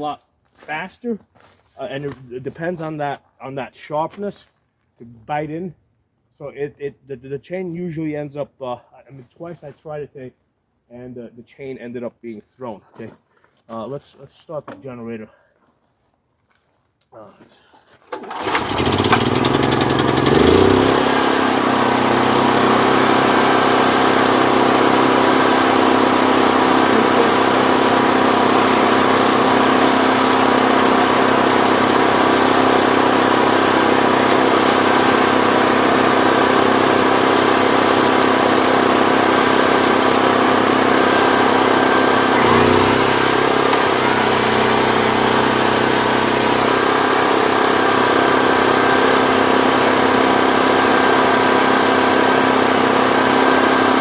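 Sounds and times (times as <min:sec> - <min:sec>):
generator engine running: 0:18.1 - 0:54.0.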